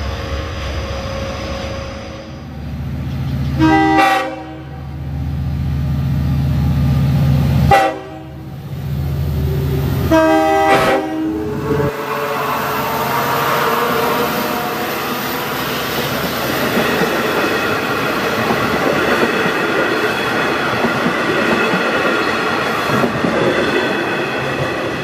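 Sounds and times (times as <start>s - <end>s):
locomotive horn blasts: 3.6s - 4.9s, 7.7s - 8.5s, 10.0s - 15.5s
diesel engine rumble: 4.7s - 12.0s.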